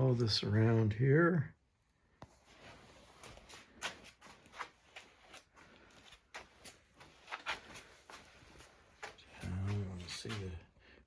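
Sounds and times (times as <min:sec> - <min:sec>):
faint rustling: 0:02.2 - 0:10.9.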